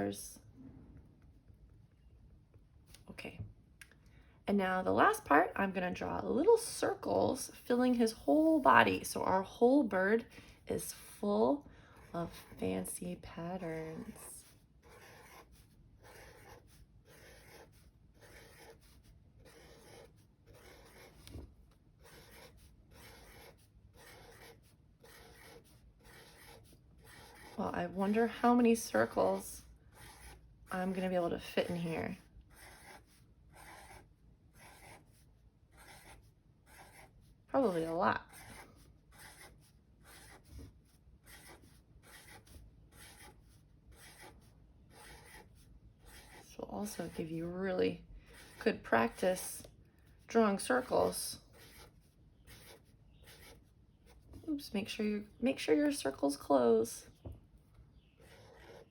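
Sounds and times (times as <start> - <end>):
pen scratching on paper: 10.2 - 54.7, 58.2 - 58.9.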